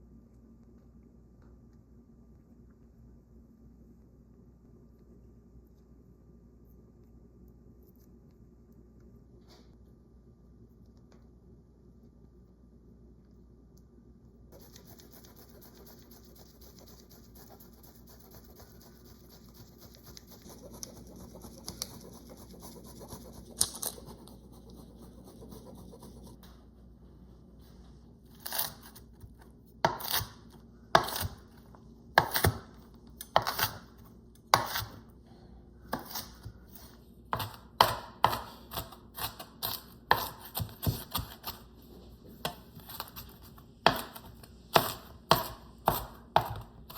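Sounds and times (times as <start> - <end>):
knife chopping on cutting board: 29.8 - 30.4, 31.0 - 31.4, 32.2 - 32.7, 33.3 - 33.8, 34.5 - 35.0, 35.9 - 36.5, 37.3 - 41.6, 42.4 - 46.9.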